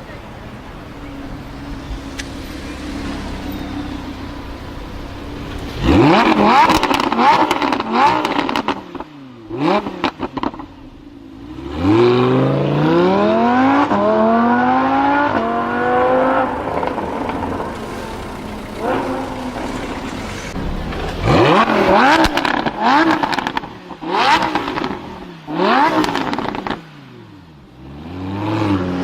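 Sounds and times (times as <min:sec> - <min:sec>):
car engine revving and accelerating: 0:00.8 - 0:10.7, 0:11.3 - 0:29.0
exhaust crackles and pops: 0:01.6 - 0:09.1, 0:16.1 - 0:25.2, 0:25.8 - 0:26.8.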